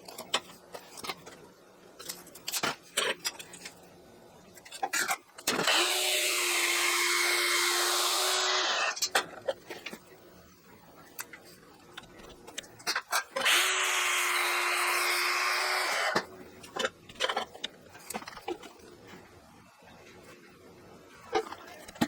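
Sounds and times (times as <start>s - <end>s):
power tool running: 5.6s - 9.0s, 13.4s - 16.2s.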